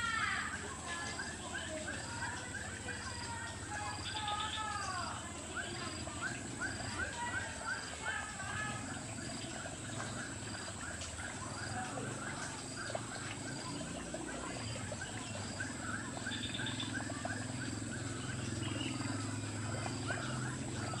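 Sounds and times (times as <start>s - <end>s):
animals chirping: 0.0s - 21.0s.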